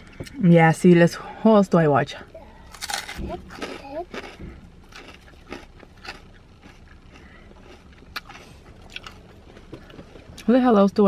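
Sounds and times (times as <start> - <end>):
person chewing crunchy food: 2.6 - 10.5.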